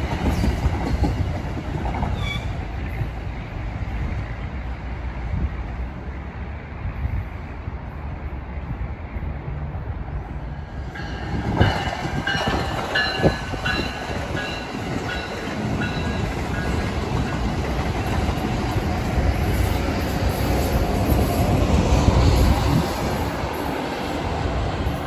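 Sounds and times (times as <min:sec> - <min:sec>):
train wheels knocking on rails: 0:00.0 - 0:02.2, 0:11.0 - 0:21.8.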